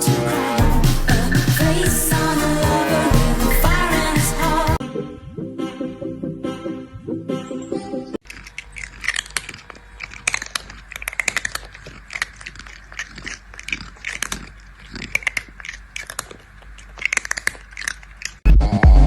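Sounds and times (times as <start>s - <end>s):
crunching and crackling clicks: 8.2s - 18.5s.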